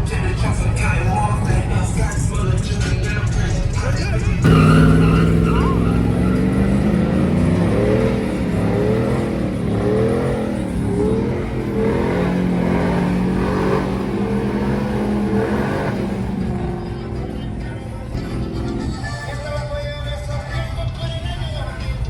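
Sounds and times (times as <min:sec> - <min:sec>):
vehicle engine revving: 0:00.0 - 0:22.0.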